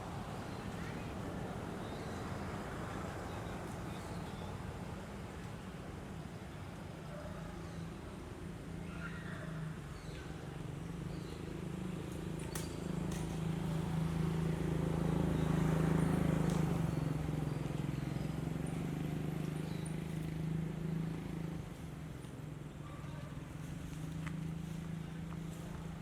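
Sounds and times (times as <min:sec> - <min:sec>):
vehicle engine humming: 0:10.3 - 0:26.0.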